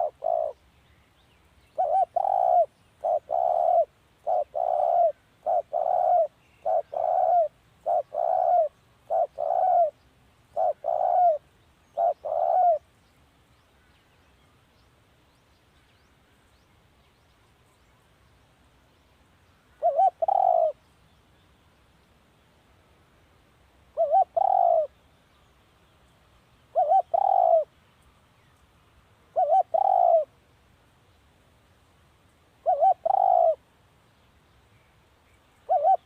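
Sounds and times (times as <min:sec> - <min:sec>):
dove cooing: 0:00.0 - 0:00.6, 0:01.8 - 0:12.8, 0:19.8 - 0:20.8, 0:23.9 - 0:25.0, 0:26.7 - 0:27.7, 0:29.3 - 0:30.3, 0:32.6 - 0:33.6, 0:35.6 - 0:36.0.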